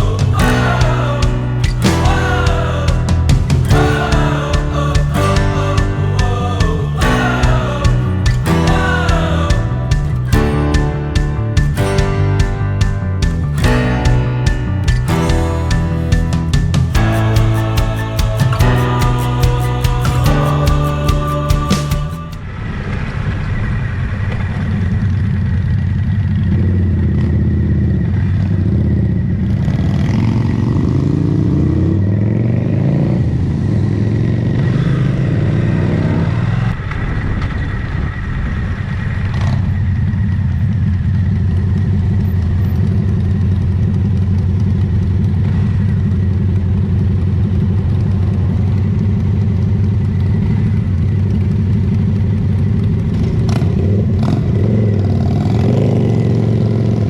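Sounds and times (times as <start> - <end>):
motorcycle engine accelerating: 24.8 - 38.1, 39.0 - 57.0.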